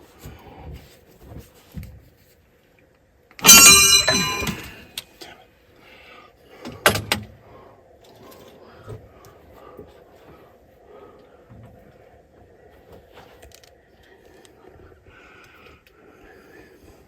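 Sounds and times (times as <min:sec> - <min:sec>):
loud metallic clang: 0:03.4 - 0:04.8
short metal knock: 0:03.4 - 0:04.8.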